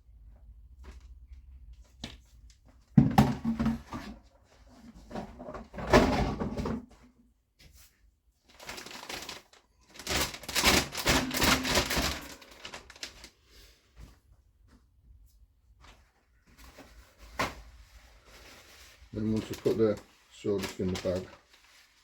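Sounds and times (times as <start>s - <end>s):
plastic bag crinkling: 8.5s - 13.6s, 18.1s - 22.0s.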